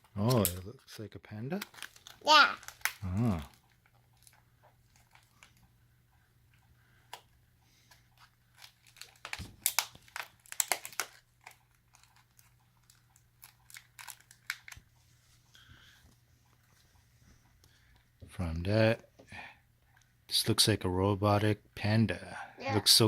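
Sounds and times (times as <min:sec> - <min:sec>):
plastic wrapping crinkling: 0:00.0 - 0:05.6, 0:08.2 - 0:14.9.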